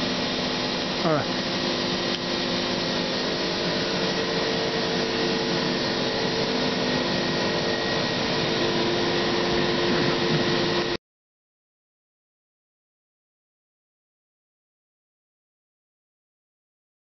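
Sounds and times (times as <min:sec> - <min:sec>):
machining center whirring: 0:00.0 - 0:11.0.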